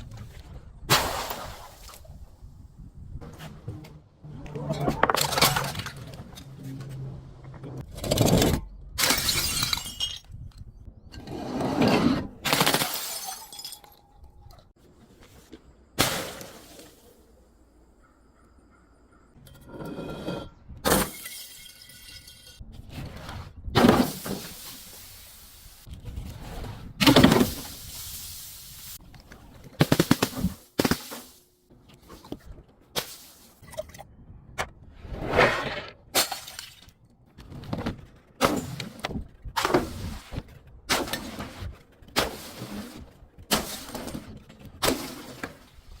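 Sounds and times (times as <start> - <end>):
glass bottles smashing: 9.0 - 10.4, 12.5 - 14.2, 20.9 - 22.6.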